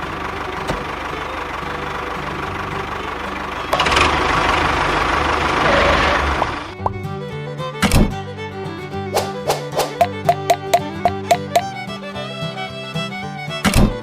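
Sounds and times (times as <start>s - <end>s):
engine low rumble: 0.0s - 9.4s.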